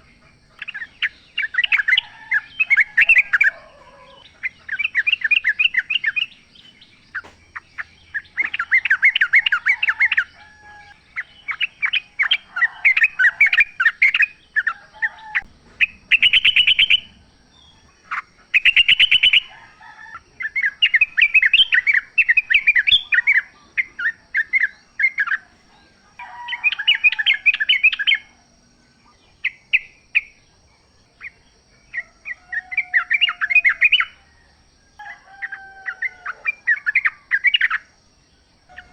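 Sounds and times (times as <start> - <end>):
bird singing bubbly chattering notes: 0.6 - 10.3.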